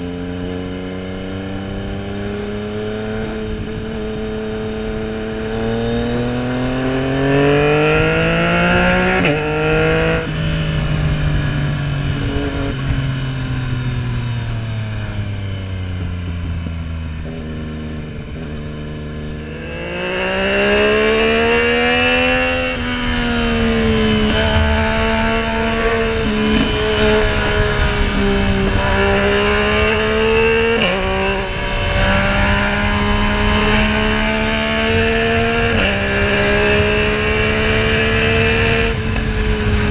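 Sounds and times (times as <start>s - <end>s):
motorcycle engine revving: 0.0s - 39.9s
wind rushing over microphone: 0.0s - 39.9s.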